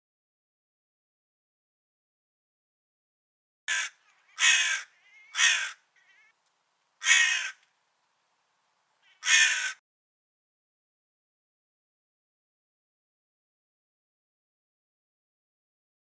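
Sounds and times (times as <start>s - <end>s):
crow cawing: 3.7s - 6.4s, 7.0s - 7.7s, 9.0s - 9.8s.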